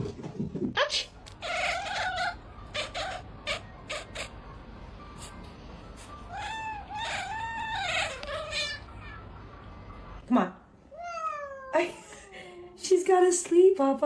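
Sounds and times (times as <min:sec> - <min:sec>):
cat meowing: 0:01.4 - 0:04.3, 0:06.3 - 0:09.3, 0:10.9 - 0:11.8.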